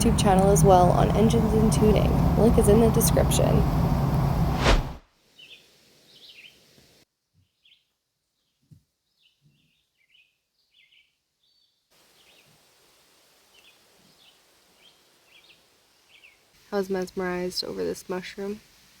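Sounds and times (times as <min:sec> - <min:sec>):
small birds chirping: 0:00.0 - 0:04.5, 0:05.4 - 0:06.7, 0:07.4 - 0:12.5, 0:13.5 - 0:16.5.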